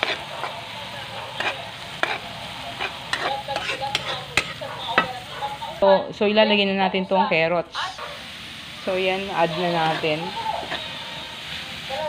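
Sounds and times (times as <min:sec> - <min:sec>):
spatula stirring and scraping: 0:00.0 - 0:05.6, 0:09.4 - 0:11.6
vegetables sizzling in hot oil: 0:00.0 - 0:12.0.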